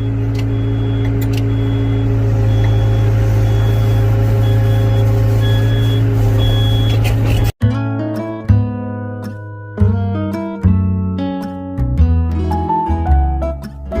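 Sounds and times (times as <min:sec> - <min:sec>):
high-pitched backup alarm beeping: 0:00.0 - 0:07.0
heavy diesel machine running: 0:00.0 - 0:07.6.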